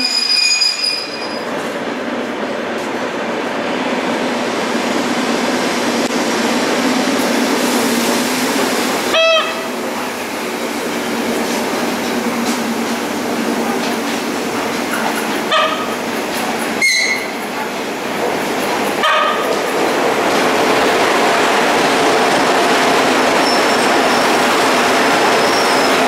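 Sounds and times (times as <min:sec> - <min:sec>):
high wheel squeal: 0:00.0 - 0:01.5, 0:16.8 - 0:17.4, 0:23.4 - 0:24.5, 0:25.3 - 0:26.0
train wheels rumbling on rail: 0:00.0 - 0:26.0
train horn toot: 0:09.1 - 0:09.8, 0:15.5 - 0:16.0, 0:16.8 - 0:17.4, 0:19.0 - 0:19.5.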